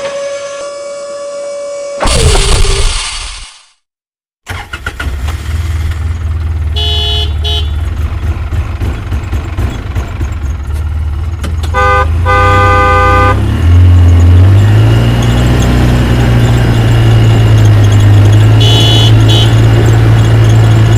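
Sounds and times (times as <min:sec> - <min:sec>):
truck engine rumbling: 0:04.5 - 0:20.9
truck horn honking: 0:06.7 - 0:07.9, 0:11.7 - 0:13.5, 0:18.3 - 0:19.9.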